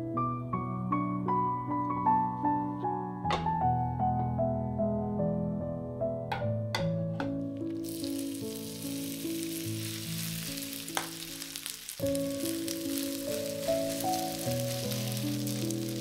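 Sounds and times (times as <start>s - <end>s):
hot oil popping and sizzling: 7.4s - 16.0s.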